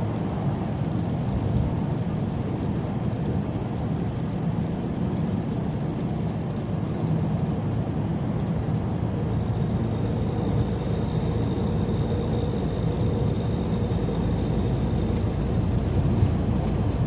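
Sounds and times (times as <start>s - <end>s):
truck road and engine rumble: 6.0s - 17.0s
faint high-pitched whine: 8.6s - 17.0s.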